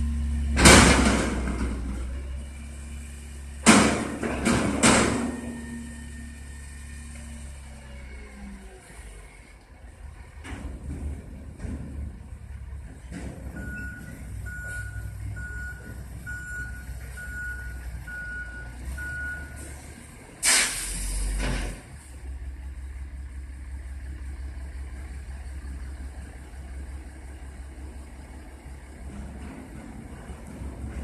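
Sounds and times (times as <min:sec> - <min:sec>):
reversing alarm beeping: 0:13.6 - 0:19.7
air brake hiss: 0:20.4 - 0:21.8.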